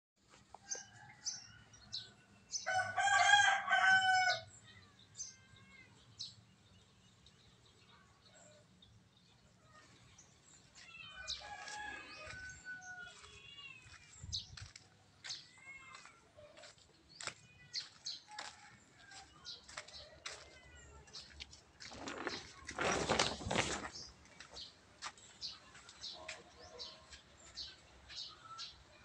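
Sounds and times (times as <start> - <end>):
birds chirping: 1.0 - 29.0
rustling: 21.8 - 24.7.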